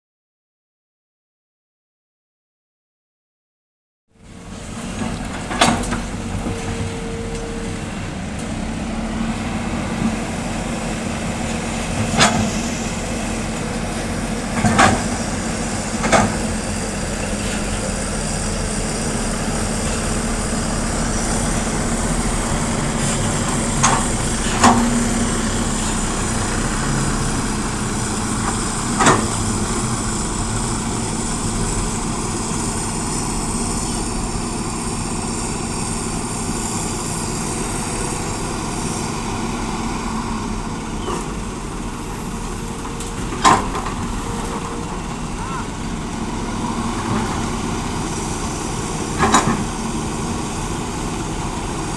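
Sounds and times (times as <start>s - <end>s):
diesel engines running: 4.2s - 51.9s
excavator clanks and knocks: 4.8s - 7.7s, 11.9s - 12.8s, 14.4s - 16.6s, 22.6s - 26.0s, 28.2s - 30.2s, 42.1s - 45.8s, 48.9s - 50.5s.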